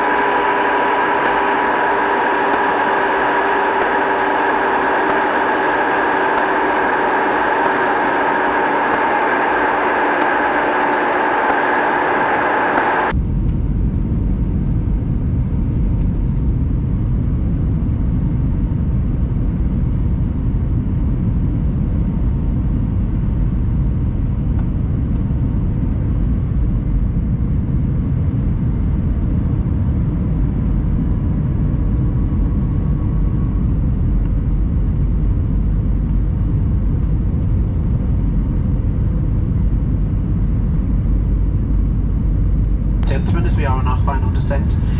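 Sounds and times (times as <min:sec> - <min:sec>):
faint steady tones: 0:00.0 - 0:13.1
airplane cabin engine rumble: 0:00.0 - 0:44.9.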